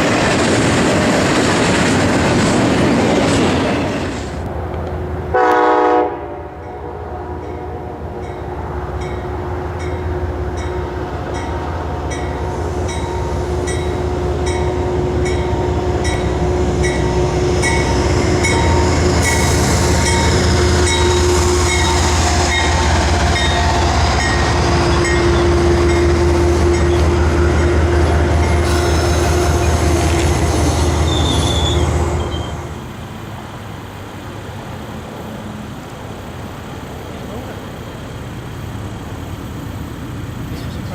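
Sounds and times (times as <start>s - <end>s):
train rumble: 0.0s - 40.9s
train wheel squeal: 12.3s - 32.8s.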